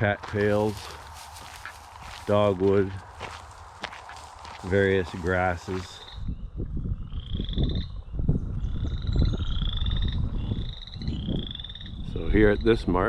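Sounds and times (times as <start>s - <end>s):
frog pulsed trill: 6.0s - 12.8s.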